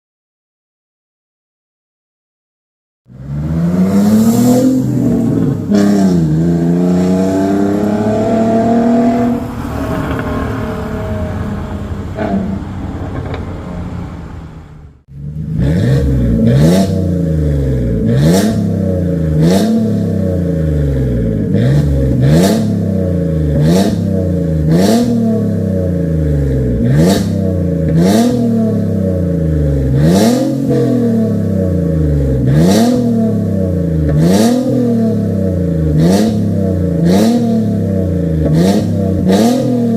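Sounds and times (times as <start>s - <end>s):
car engine revving: 3.1s - 39.9s
exhaust cracks: 8.9s - 39.9s.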